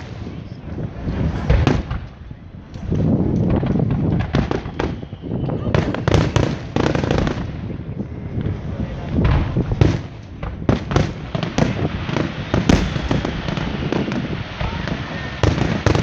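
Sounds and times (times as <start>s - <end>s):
fireworks bangs and crackles: 0.0s - 16.0s
low rumble: 0.9s - 3.8s, 12.7s - 14.5s.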